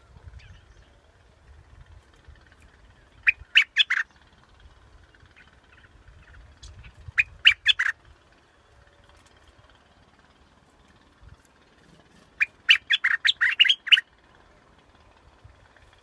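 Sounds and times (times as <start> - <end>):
bulbul song: 2.6 - 11.2, 12.4 - 15.3.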